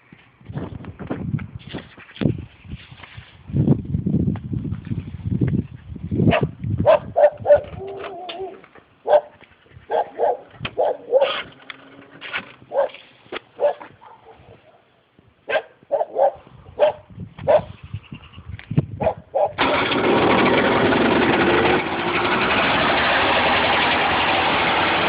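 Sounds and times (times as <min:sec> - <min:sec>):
dog barking: 0:06.3 - 0:07.8, 0:09.0 - 0:11.4, 0:12.7 - 0:13.0, 0:13.6 - 0:14.9, 0:15.5 - 0:17.7, 0:19.0 - 0:19.6
dog whining: 0:07.2 - 0:08.6.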